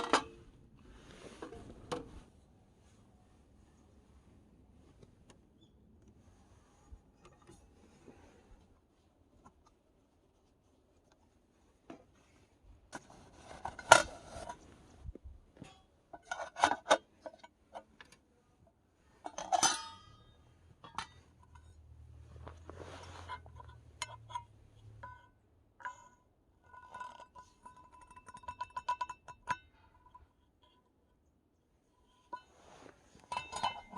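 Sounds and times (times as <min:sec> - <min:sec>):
cookware and utensils clattering: 0:19.3 - 0:20.3.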